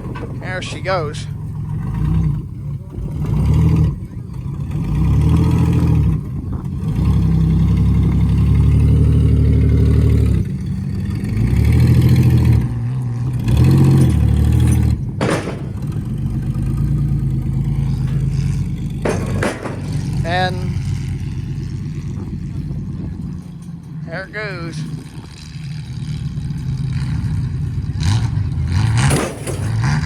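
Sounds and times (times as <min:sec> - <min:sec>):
car engine revving: 0:00.0 - 0:30.0
sharp crack: 0:28.8 - 0:30.0.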